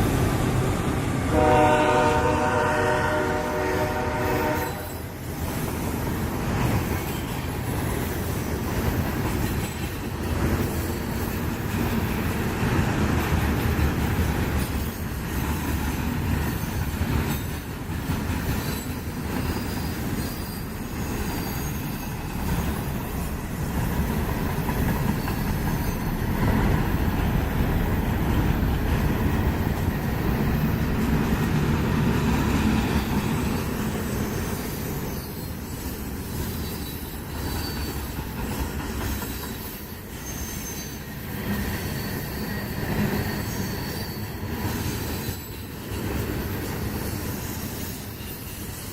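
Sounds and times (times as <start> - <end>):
train wheels rumbling on rails: 0.0 - 48.9
high-pitched wheel squeals: 18.5 - 22.9, 32.9 - 38.2, 39.2 - 46.1.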